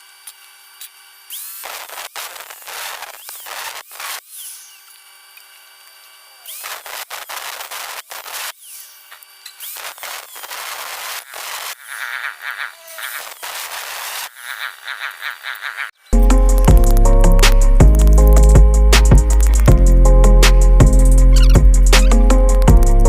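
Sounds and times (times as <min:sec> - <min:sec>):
electric drill whine: 0:00.0 - 0:16.0.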